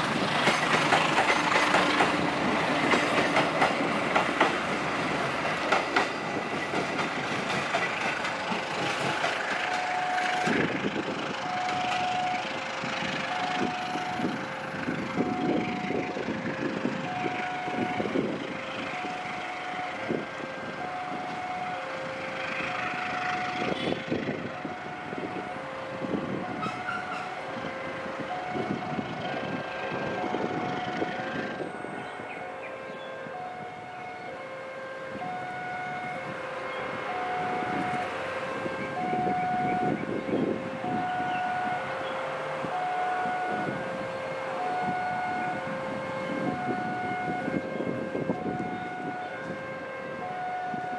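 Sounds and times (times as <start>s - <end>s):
train wheels clattering over rail joints: 0.0s - 14.9s
two-tone electronic warning signal: 9.7s - 10.5s, 11.4s - 12.4s, 13.3s - 14.4s, 15.2s - 16.1s, 17.0s - 18.3s, 20.8s - 21.8s, 35.2s - 36.2s, 37.1s - 43.8s, 44.6s - 49.5s, 50.2s - 50.9s.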